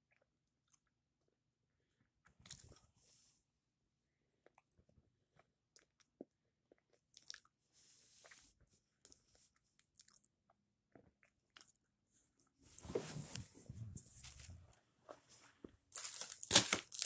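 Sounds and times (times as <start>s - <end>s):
chewing with wet mouth clicks: 4.4s - 7.5s, 9.0s - 11.9s.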